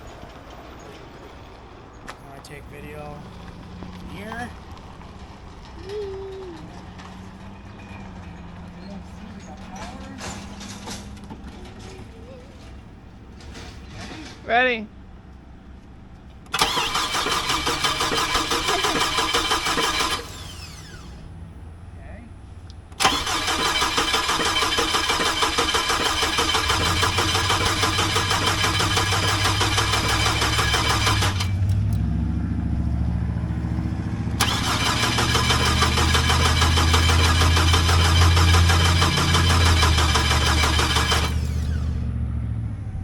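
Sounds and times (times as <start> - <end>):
starter cranking engine: 16.4 - 21.3, 22.9 - 32.1, 33.0 - 42.1
starter spinning down whine: 16.4 - 21.5, 22.9 - 43.0.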